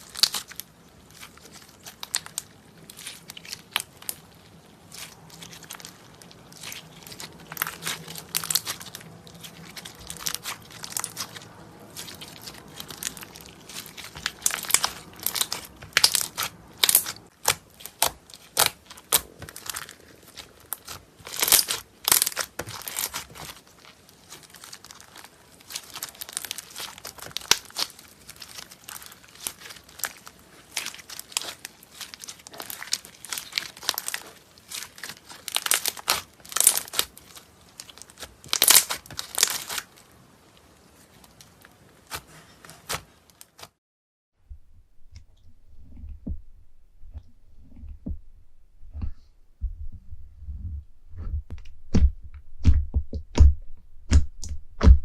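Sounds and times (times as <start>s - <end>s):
slime crackling and popping: 0.0s - 43.8s.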